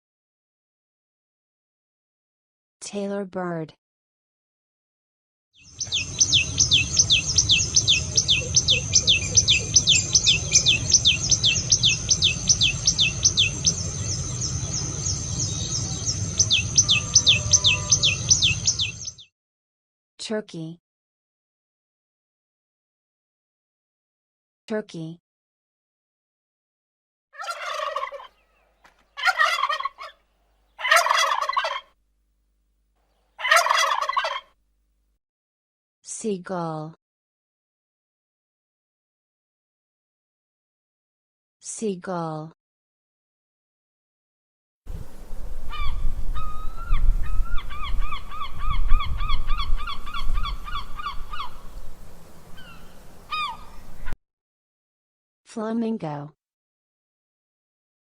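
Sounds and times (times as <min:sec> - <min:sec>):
turkey gobbling: 0:05.8 - 0:14.0, 0:16.0 - 0:19.1, 0:27.4 - 0:31.9, 0:33.4 - 0:34.5, 0:45.7 - 0:51.9, 0:52.5 - 0:54.2
gull calling: 0:05.8 - 0:19.1, 0:27.4 - 0:30.2, 0:30.8 - 0:31.9, 0:33.4 - 0:34.5, 0:45.7 - 0:54.2
steady low rumble: 0:06.1 - 0:17.4.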